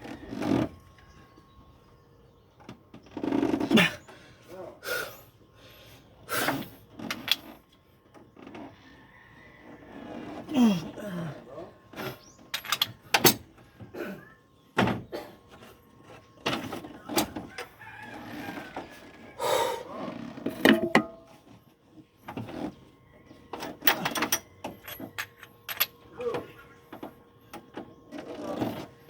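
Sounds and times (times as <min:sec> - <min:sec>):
sharp knocks and clanks: 0:20.4 - 0:21.3.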